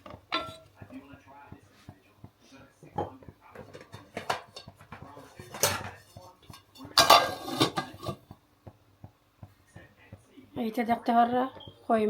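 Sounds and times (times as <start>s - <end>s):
metal spoon scraping cooking pot: 3.6s - 8.3s.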